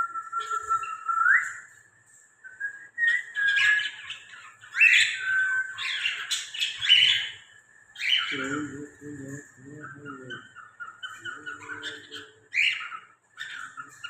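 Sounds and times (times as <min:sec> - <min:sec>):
cockatiel whistling: 0:00.0 - 0:01.7, 0:02.4 - 0:07.4
birds chirping and whistling: 0:00.0 - 0:14.0.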